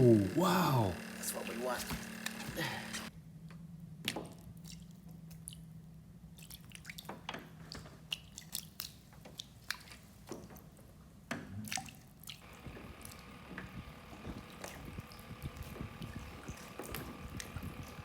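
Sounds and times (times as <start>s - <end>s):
small wet drips and clicks: 4.1s - 5.7s, 6.3s - 18.0s.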